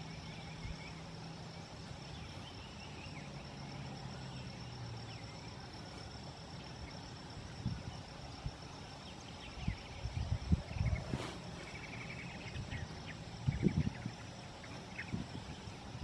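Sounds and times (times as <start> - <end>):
high insect drone: 0.0 - 16.0
wind gusting against microphone: 7.2 - 16.0.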